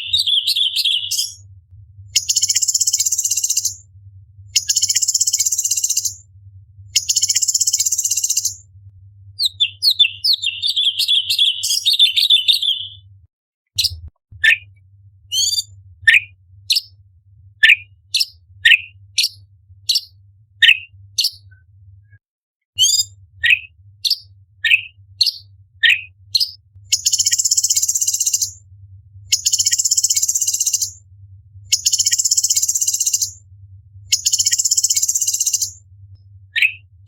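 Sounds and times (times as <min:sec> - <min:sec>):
bird singing chattering phrases: 0:00.0 - 0:01.4, 0:09.4 - 0:13.0.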